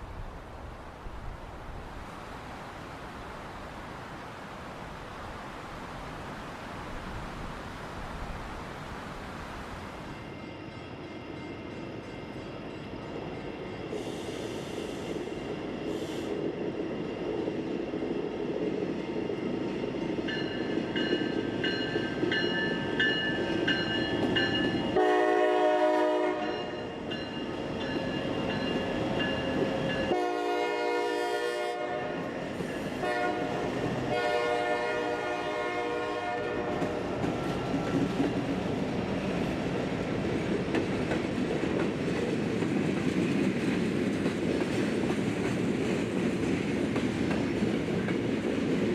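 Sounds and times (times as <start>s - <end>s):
train rumble and wheel clatter: 0.0s - 48.9s
locomotive air horn: 25.0s - 26.8s, 30.1s - 32.3s, 33.0s - 37.0s.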